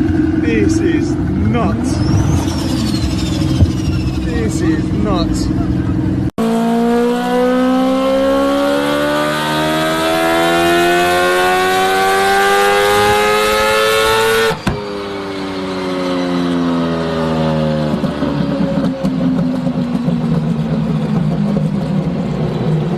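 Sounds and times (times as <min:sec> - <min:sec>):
car engine accelerating: 0:00.0 - 0:22.9.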